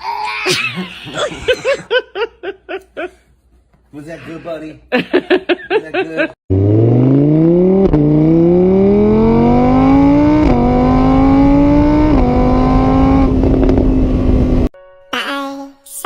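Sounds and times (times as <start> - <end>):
vehicle engine accelerating: 6.5 - 14.7.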